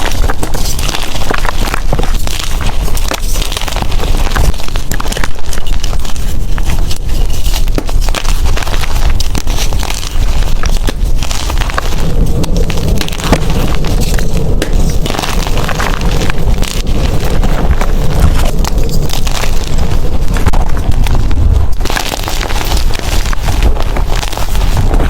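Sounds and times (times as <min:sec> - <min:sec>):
chalk crackling and crunching: 0:00.0 - 0:25.0
heavy low rumble: 0:09.0 - 0:25.0.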